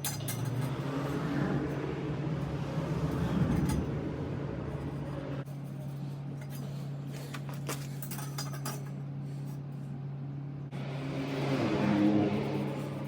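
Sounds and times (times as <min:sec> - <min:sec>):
metallic clinks and knocks: 0:00.0 - 0:00.9, 0:05.4 - 0:09.0
steady low hum: 0:00.0 - 0:13.0.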